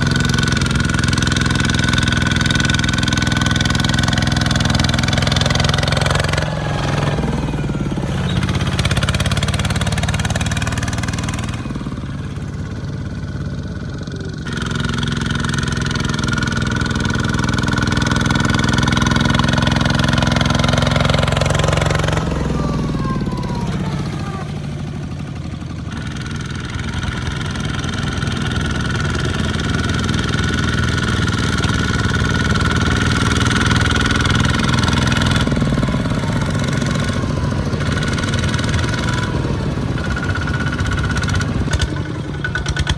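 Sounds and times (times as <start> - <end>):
small tractor engines running: 0.0 - 42.9.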